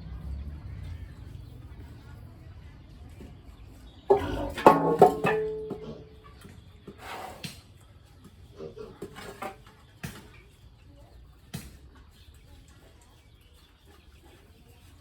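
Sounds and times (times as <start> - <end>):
pigs grunting: 4.1 - 4.9, 5.6 - 6.4, 8.5 - 9.4.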